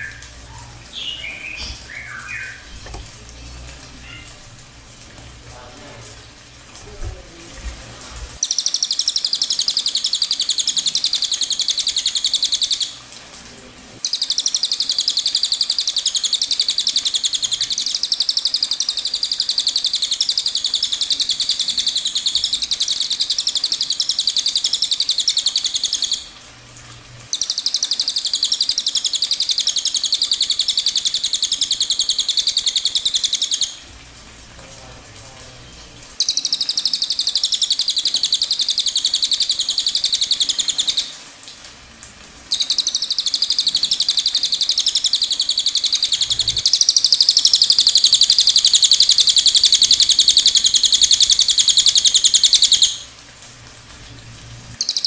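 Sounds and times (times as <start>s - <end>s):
small bird trilling: 0.0s - 0.2s, 0.9s - 2.8s, 42.5s - 53.0s.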